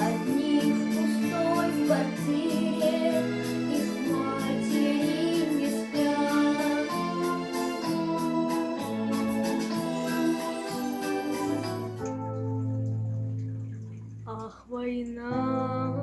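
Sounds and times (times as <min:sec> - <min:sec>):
person singing: 0:00.0 - 0:08.0
sustained backing chords: 0:00.0 - 0:14.2.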